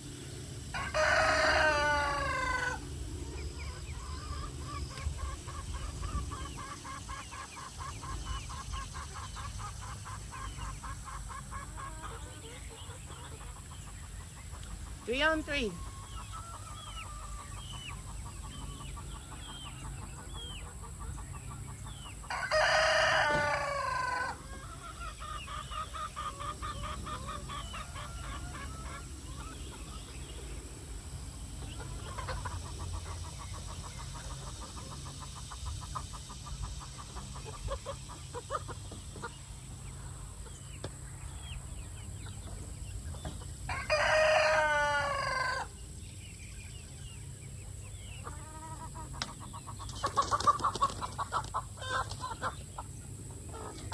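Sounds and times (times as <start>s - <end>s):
chickens clucking and trilling: 0.0s - 53.9s
rooster crowing loudly: 0.7s - 2.8s, 22.3s - 24.4s, 43.7s - 45.7s.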